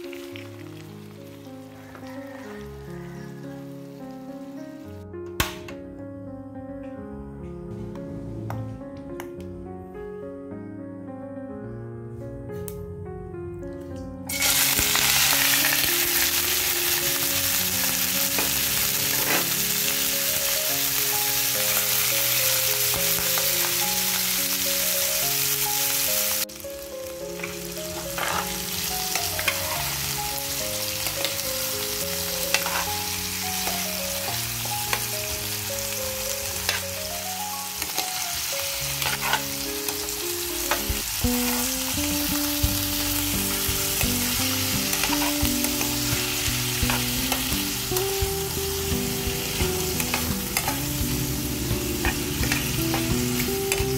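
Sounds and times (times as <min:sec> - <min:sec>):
chicken sizzling in hot oil: 0:00.0 - 0:04.6, 0:14.3 - 0:53.9
metal spatula clicking and scraping: 0:39.0 - 0:39.5, 0:44.9 - 0:46.0.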